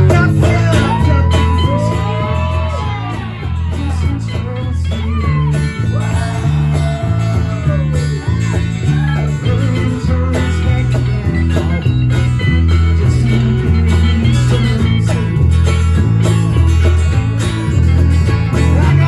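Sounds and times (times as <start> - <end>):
lead guitar solo: 0.0 - 19.0
pulsing bass line: 0.0 - 19.0.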